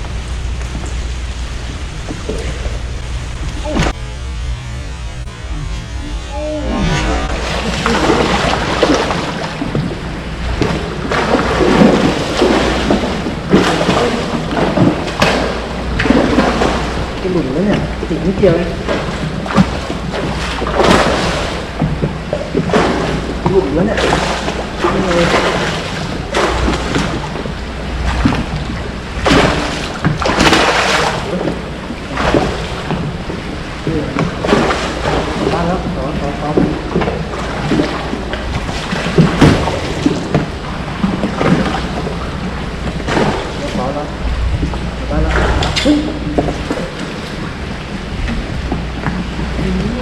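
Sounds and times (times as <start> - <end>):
water washing around boat: 0.0 - 50.0.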